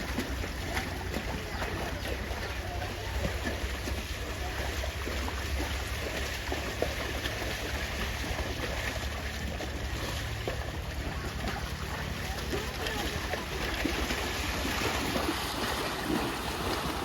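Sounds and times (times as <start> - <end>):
water splashing and lapping: 0.0 - 17.0.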